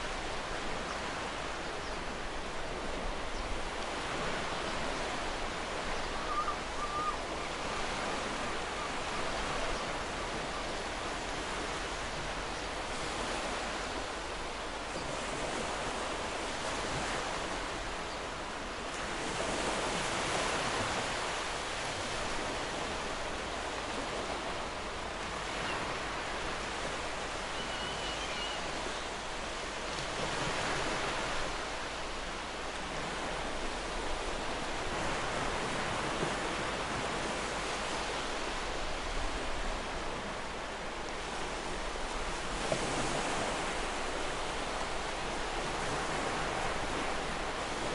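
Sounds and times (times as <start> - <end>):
ocean waves washing in: 0.0 - 47.9.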